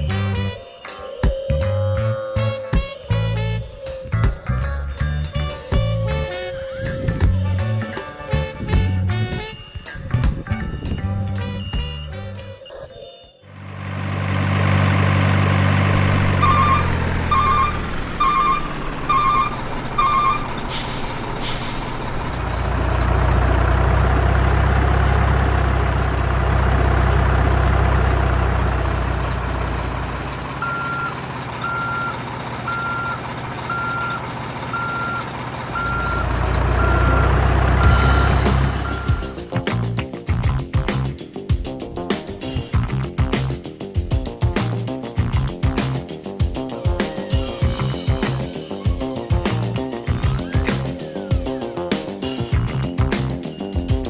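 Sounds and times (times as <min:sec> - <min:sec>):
reversing beeps: 0:10.6 - 0:13.5, 0:16.4 - 0:20.7, 0:29.7 - 0:39.4
truck engine running: 0:13.5 - 0:54.0
air brake hiss: 0:20.6 - 0:22.1.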